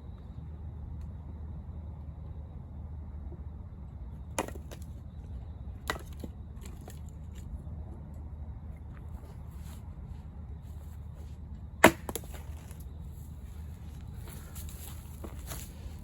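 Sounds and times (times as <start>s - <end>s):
axe chopping firewood: 4.4s - 4.8s, 5.9s - 6.9s, 11.8s - 12.8s.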